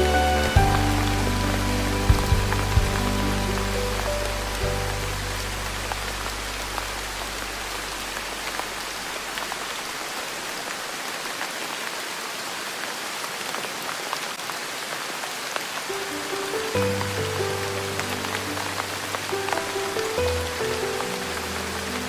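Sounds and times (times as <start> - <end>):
soft background music: 0.0 - 7.4, 16.0 - 22.0
rain pattering: 0.0 - 22.0.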